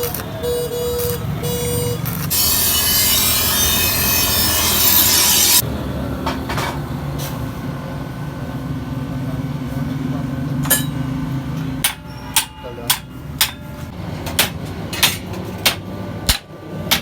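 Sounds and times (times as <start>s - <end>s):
power grinder grinding steel: 1.6s - 5.6s.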